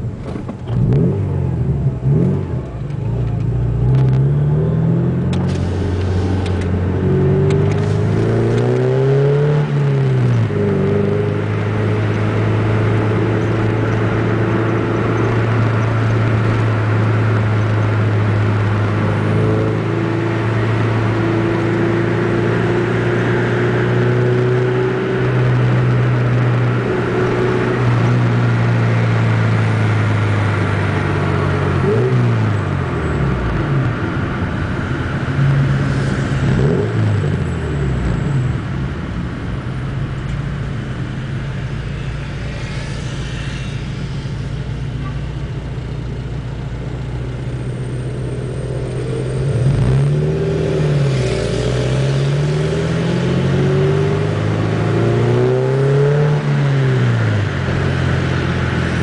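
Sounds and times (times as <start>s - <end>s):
loud car engine running: 0.0s - 59.0s.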